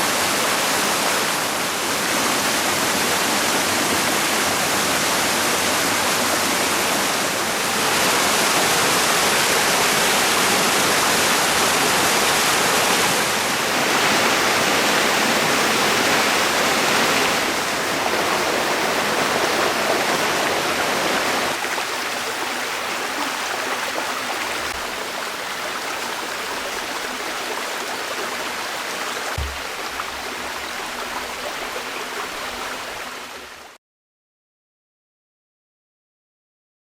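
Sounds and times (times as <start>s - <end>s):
waterfall rushing and splashing: 0.0s - 33.8s
low thump: 29.4s - 30.2s.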